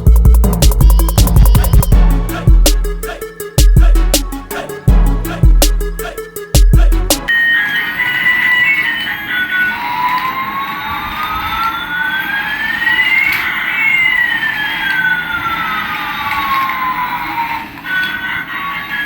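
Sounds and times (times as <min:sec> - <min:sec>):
toy electronic siren wail: 0:07.3 - 0:19.0.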